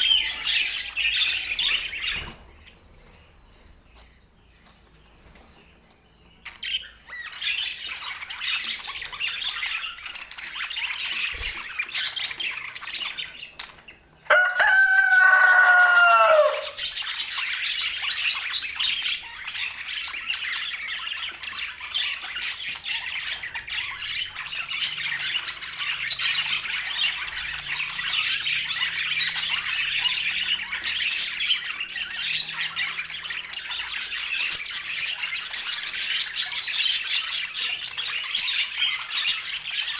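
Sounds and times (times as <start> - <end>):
loud falling bird call: 14.3 - 16.8.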